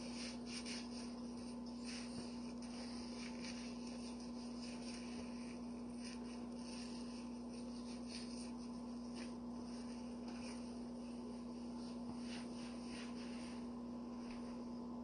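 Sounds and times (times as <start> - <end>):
sponge wiping: 0.0 - 13.8
low electrical hum: 0.0 - 15.0.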